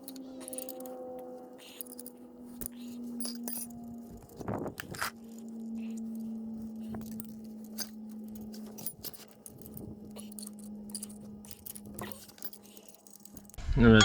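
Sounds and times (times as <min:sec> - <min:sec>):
metal brake discs clinking: 0:00.0 - 0:13.6.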